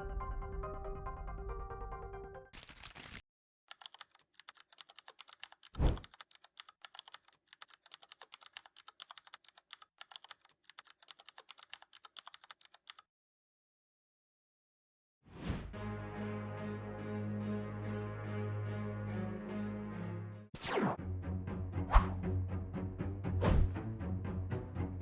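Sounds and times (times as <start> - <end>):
typing on a keyboard: 2.6 - 13.1.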